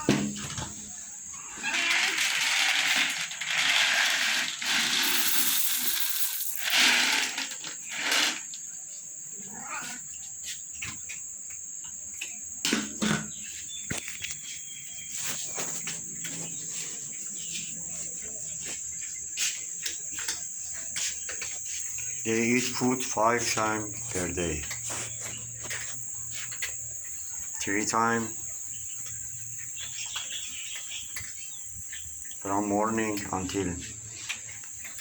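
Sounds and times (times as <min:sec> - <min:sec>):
crickets chirring: 0:00.0 - 0:35.0
rustling: 0:01.6 - 0:08.6.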